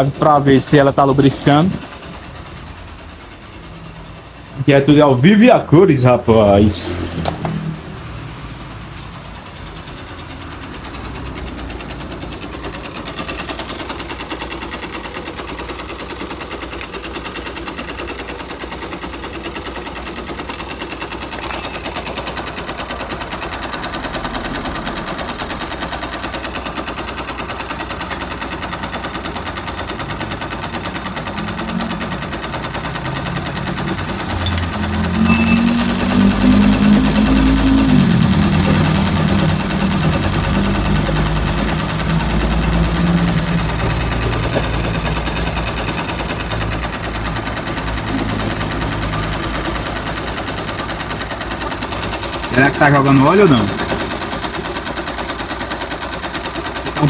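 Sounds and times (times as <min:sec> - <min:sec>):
motorcycle engine knocking: 0:09.2 - 0:57.0
rising and falling note: 0:34.3 - 0:39.6.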